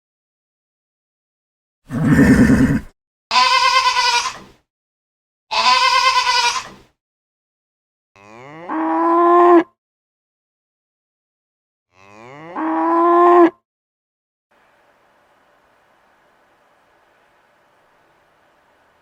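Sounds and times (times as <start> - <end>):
animal bleating: 1.9 - 4.5, 5.5 - 6.8, 8.2 - 9.3, 11.9 - 13.5
cow mooing: 8.2 - 9.7, 11.9 - 13.6.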